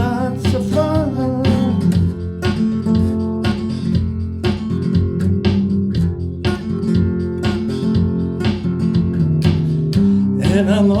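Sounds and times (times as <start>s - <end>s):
guitar strumming: 0.0s - 11.0s.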